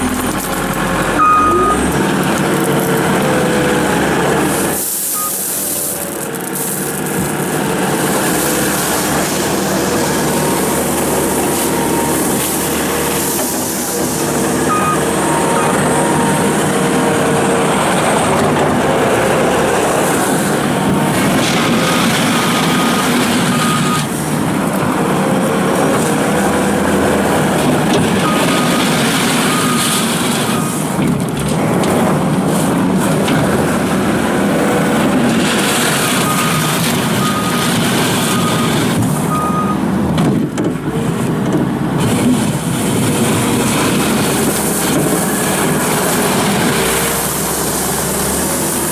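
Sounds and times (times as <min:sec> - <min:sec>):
loader engine and hydraulics: 0:00.0 - 0:48.9
backup alarm beeping: 0:01.2 - 0:01.9, 0:14.6 - 0:16.5.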